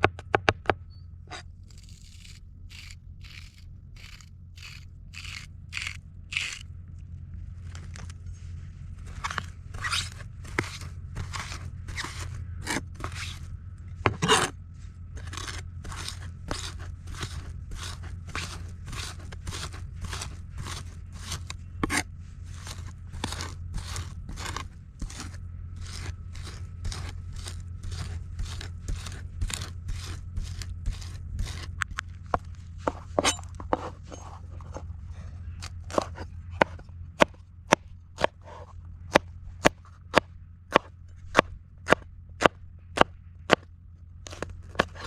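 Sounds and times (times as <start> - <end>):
low steady hum: 0.0 - 45.0
knife cutting crisp food: 1.7 - 6.6, 15.2 - 22.0, 22.6 - 31.9.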